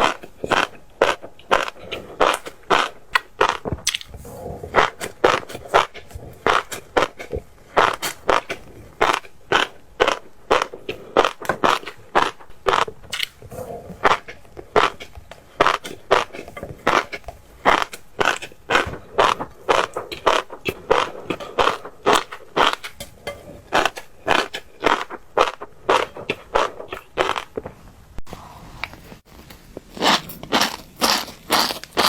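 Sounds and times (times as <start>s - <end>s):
crisp crunching and popping while chewing: 0.0s - 27.8s, 28.9s - 32.0s.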